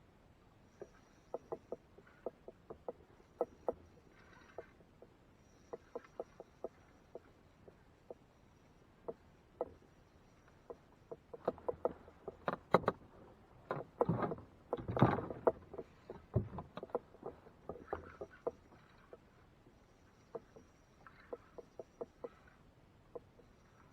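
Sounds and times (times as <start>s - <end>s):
gear knocking on kayak hull: 0.8s - 4.8s, 10.7s - 19.3s.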